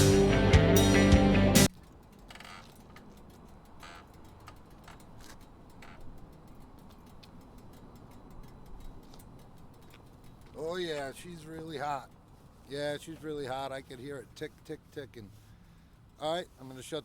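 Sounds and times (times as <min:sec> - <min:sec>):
song playing: 0:00.0 - 0:01.7
cooling engine metal ticking: 0:01.7 - 0:13.8.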